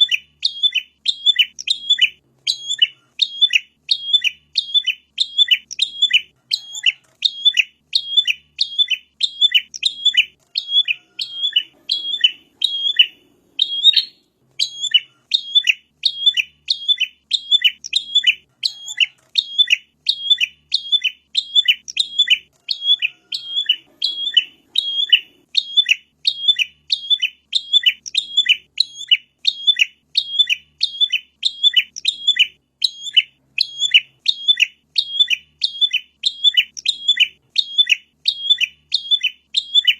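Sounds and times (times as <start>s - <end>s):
bird sharp high chirps: 0.0s - 39.9s.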